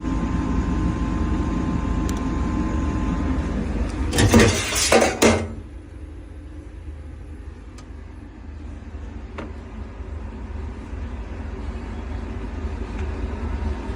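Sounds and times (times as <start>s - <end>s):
refrigeration unit humming and rattling: 0.0s - 13.9s
metallic clattering: 3.9s - 5.6s.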